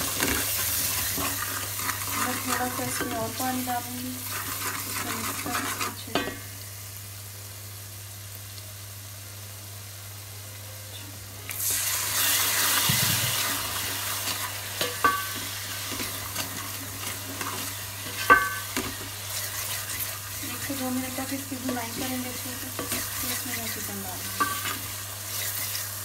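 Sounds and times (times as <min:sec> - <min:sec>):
water hitting hot oil sizzle: 0:00.0 - 0:09.9, 0:11.4 - 0:26.0
spices frying in oil: 0:00.0 - 0:26.0
wooden spoon knocking on pot: 0:18.2 - 0:19.0.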